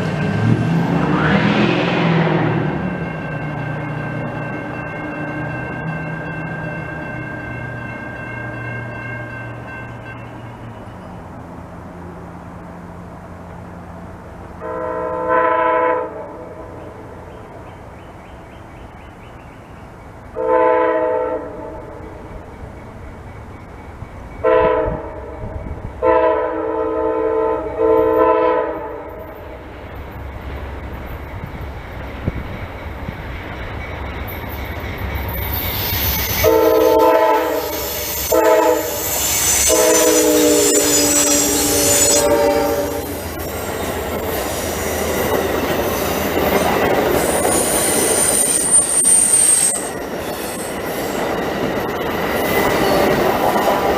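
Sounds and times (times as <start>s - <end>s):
rail noise: 0.0s - 53.9s
train air horn blasts: 14.6s - 16.7s, 20.4s - 21.9s, 24.4s - 29.3s, 36.0s - 43.4s
high wheel squeal: 30.6s - 53.4s.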